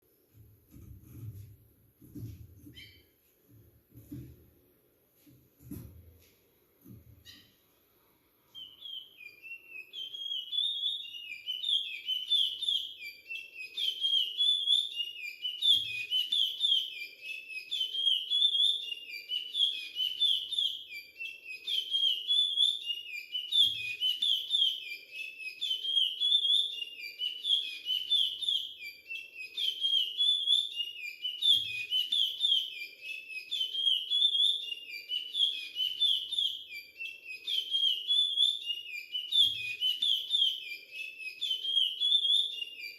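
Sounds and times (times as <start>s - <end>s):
finch singing whistled notes: 2.6s - 3.1s, 8.5s - 42.9s.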